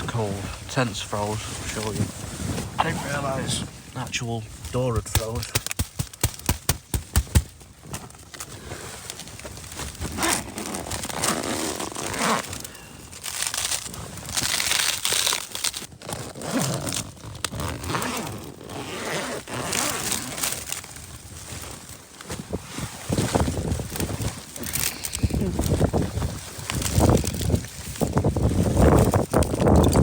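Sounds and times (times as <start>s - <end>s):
frozen tent fabric crinkling: 0.0s - 30.0s
sharp clicks: 5.1s - 7.4s.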